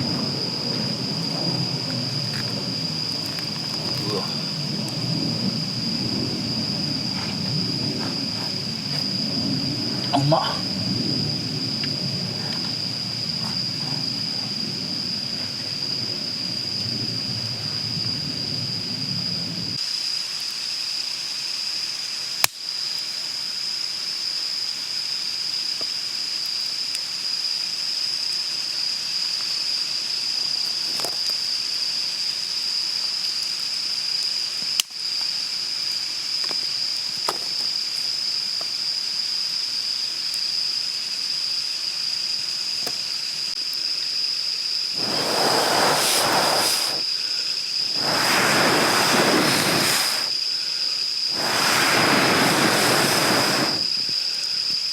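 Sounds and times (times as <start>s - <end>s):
campfire popping: 0.0s - 18.4s, 44.9s - 47.2s, 47.8s - 54.3s
high-pitched insect drone: 0.0s - 25.5s, 40.6s - 54.9s
rushing noise: 44.9s - 50.4s, 51.2s - 54.1s.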